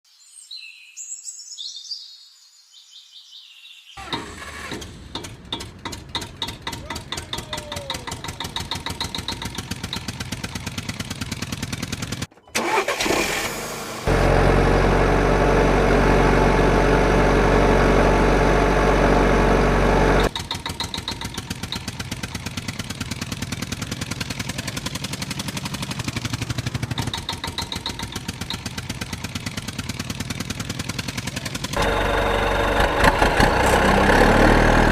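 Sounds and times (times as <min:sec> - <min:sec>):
tractor engine putt-putt: 0:04.0 - 0:34.9
loud steady multi-tone drone: 0:31.8 - 0:33.8.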